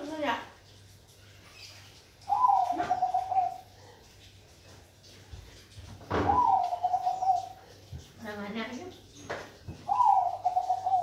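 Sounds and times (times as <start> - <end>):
dove cooing: 2.3 - 3.9, 6.1 - 7.8, 9.8 - 11.0.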